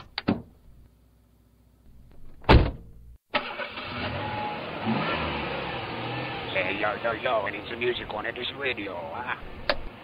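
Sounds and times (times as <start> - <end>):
car engine starting and running: 3.3 - 10.0.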